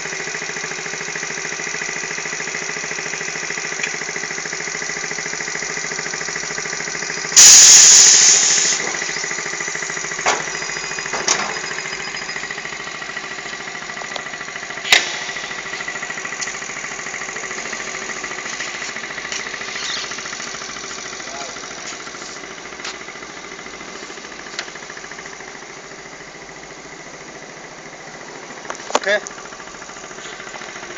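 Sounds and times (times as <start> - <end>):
motorcycle engine running: 0.0 - 30.9
loud hissing burst: 7.3 - 10.2.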